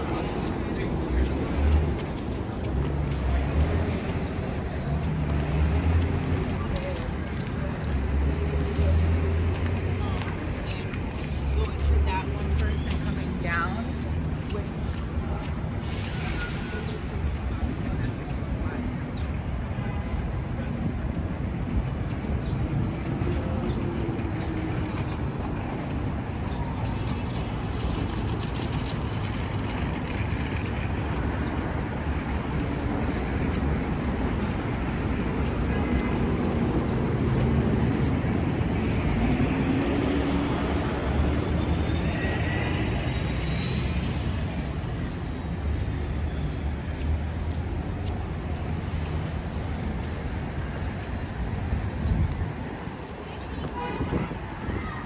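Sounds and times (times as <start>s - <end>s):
traffic rumble: 0.0s - 55.0s
wind on microphone: 49.7s - 55.0s.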